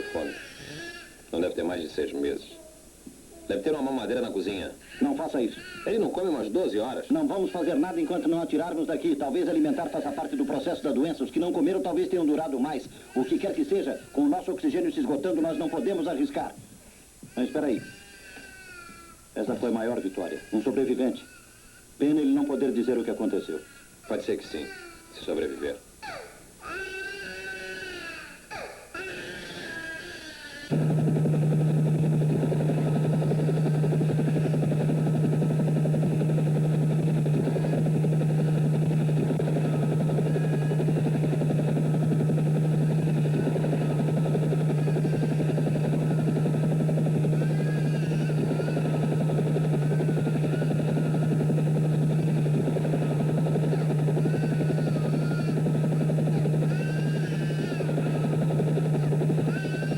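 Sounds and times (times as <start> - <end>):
helicopter drone: 3.7 - 16.2, 30.7 - 59.9.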